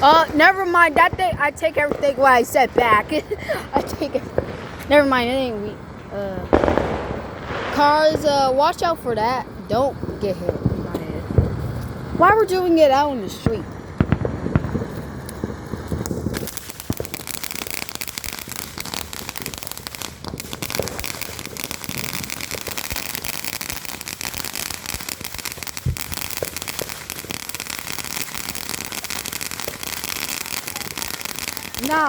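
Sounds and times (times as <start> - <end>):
firework crackling: 0.0 - 32.0.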